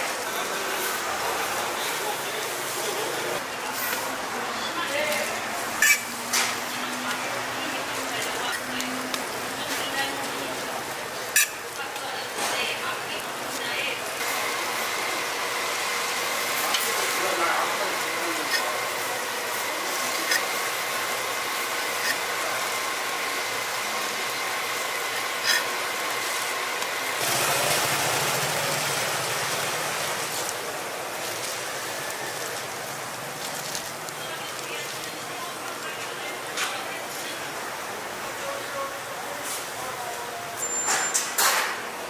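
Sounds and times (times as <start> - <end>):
pancake sizzling on a griddle: 7.6 - 37.4.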